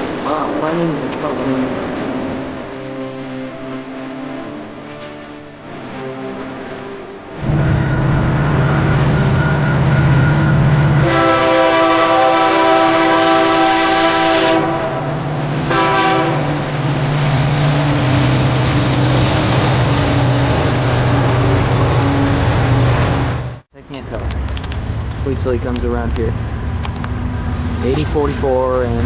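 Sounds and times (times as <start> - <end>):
diesel locomotive engine running: 0.0 - 29.0
train air horn blasts: 1.7 - 16.8.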